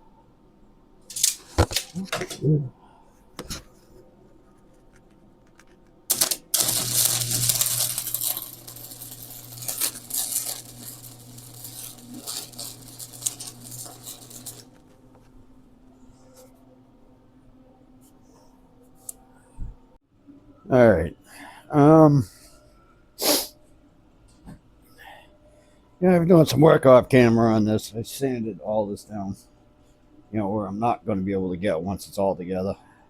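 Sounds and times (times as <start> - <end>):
welding arc crackling and hissing: 1.1 - 2.3, 6.1 - 14.8
welder low hum: 6.1 - 14.9.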